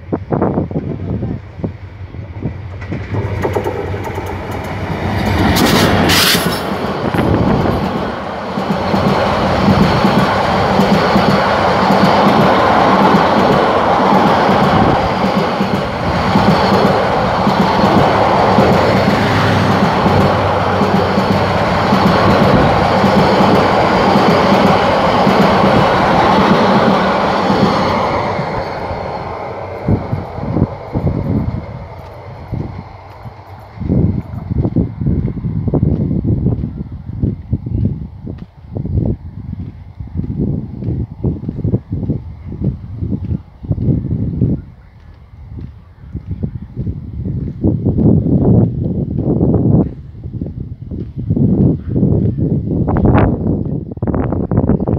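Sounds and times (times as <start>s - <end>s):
passenger train rumbling past: 0.0s - 54.9s
wheels clacking over rail joints: 2.3s - 34.7s.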